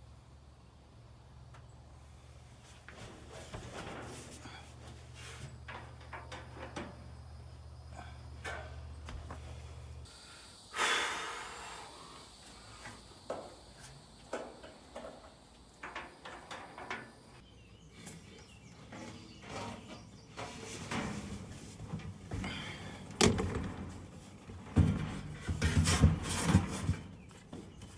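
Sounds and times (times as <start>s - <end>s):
dryer parts knocking and clicking: 2.9s - 9.6s, 13.2s - 17.4s, 18.7s - 27.9s.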